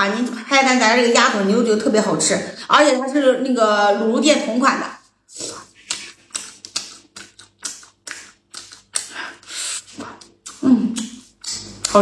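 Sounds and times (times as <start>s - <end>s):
wet chewing and smacking: 5.5s - 12.0s.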